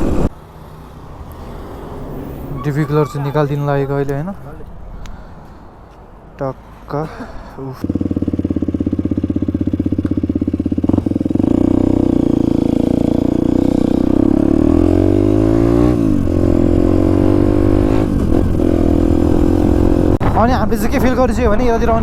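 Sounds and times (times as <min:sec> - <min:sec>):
motorcycle engine accelerating: 0:07.8 - 0:20.2.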